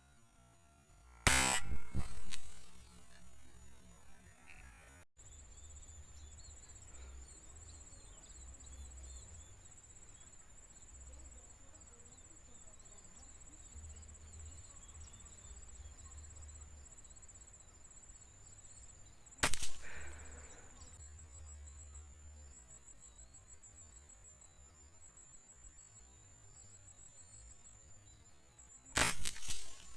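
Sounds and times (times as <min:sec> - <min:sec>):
insect trill: 0:00.0 - 0:29.9
air rifle shot: 0:01.3 - 0:02.9, 0:19.4 - 0:20.6, 0:29.0 - 0:29.9.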